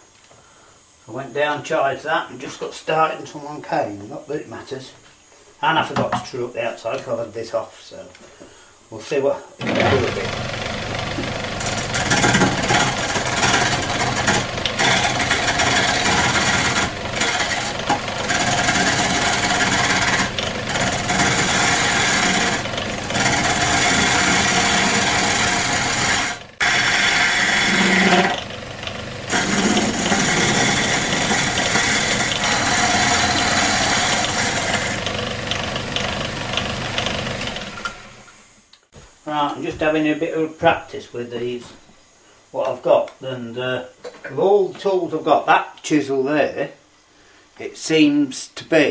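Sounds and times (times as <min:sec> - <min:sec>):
chisel scraping spinning wood: 0:09.6 - 0:38.4
lathe motor running: 0:09.6 - 0:38.4.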